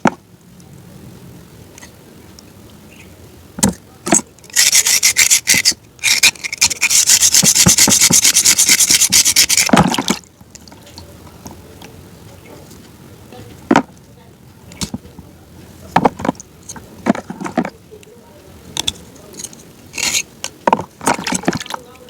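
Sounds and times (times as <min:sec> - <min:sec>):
rapid crunching crackling: 0:03.6 - 0:11.3, 0:18.8 - 0:22.0
sharp knocks: 0:07.3 - 0:10.2.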